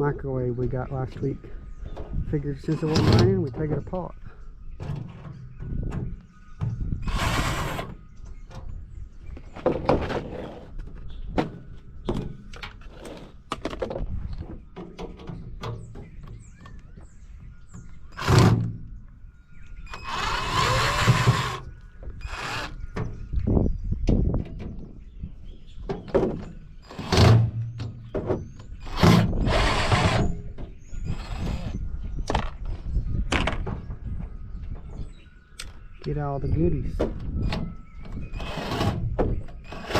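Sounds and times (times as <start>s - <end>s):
knocks and clatters of microwave parts: 4.8s - 6.9s, 11.3s - 12.8s, 13.5s - 16.5s, 25.8s - 30.8s, 32.2s - 35.1s
power drill running: 19.9s - 21.6s, 22.2s - 22.8s.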